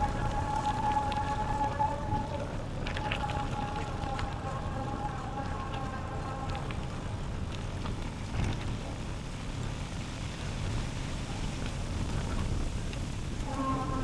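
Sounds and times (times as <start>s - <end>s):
bicycle tyres rolling on trail: 0.0s - 14.0s.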